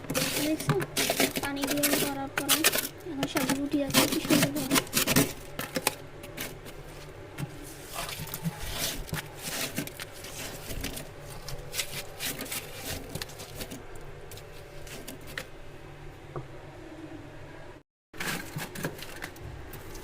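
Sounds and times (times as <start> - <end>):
ice scraping and knocking: 0.0 - 15.5.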